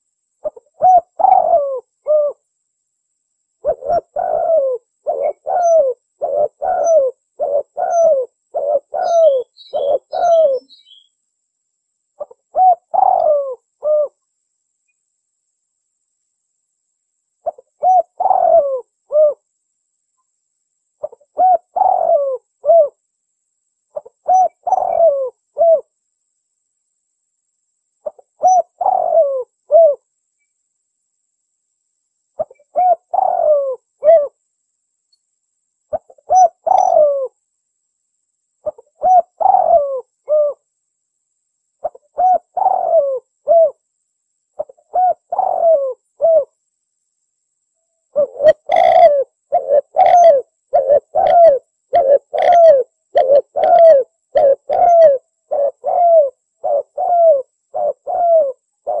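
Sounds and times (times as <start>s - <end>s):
dove cooing: 0.4s - 2.4s, 3.6s - 11.1s, 12.2s - 14.2s, 17.4s - 19.4s, 21.0s - 23.0s, 23.9s - 25.9s, 28.0s - 30.1s, 32.4s - 34.4s, 35.9s - 37.4s, 38.6s - 40.6s, 41.8s - 43.8s, 44.6s - 46.6s, 48.1s - 59.0s.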